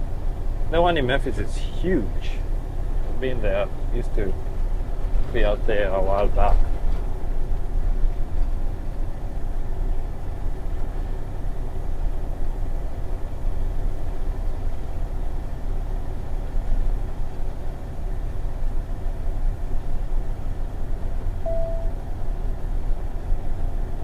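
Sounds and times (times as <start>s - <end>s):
truck engine and road noise: 0.0s - 24.0s.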